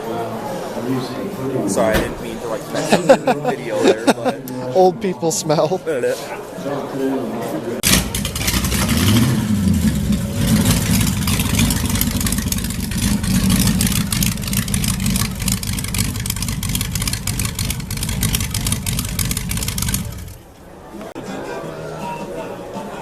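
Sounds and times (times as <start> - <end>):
car engine revving: 7.8 - 20.6.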